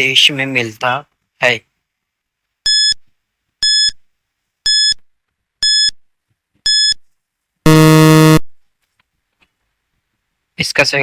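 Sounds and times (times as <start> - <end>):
short high electronic beeps: 7.7 - 8.5.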